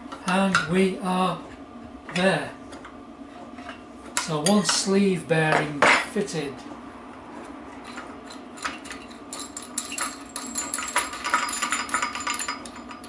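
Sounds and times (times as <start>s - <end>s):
steady low hum: 0.0s - 13.0s
metal tools clinking: 7.8s - 13.0s.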